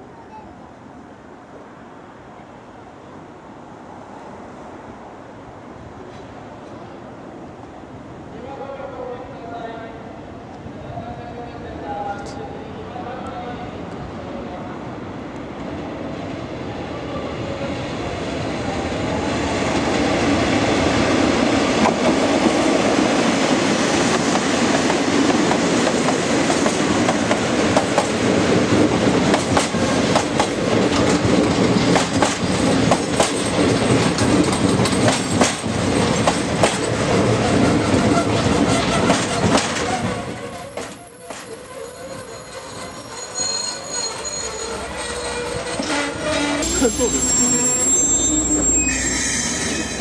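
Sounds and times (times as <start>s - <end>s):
diesel locomotive engines: 11.7s - 50.0s
train wheels clicking over rail joints: 23.9s - 41.6s.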